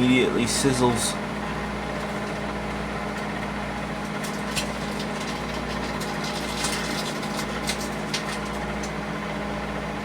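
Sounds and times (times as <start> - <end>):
microwave oven humming: 0.0 - 10.0.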